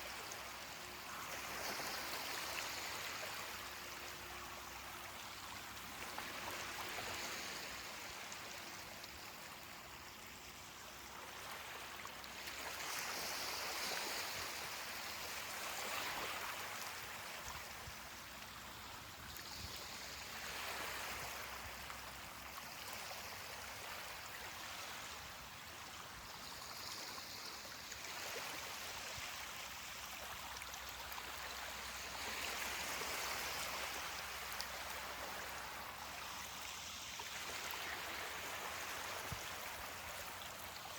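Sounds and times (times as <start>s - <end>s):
ocean waves on beach: 0.0s - 18.3s.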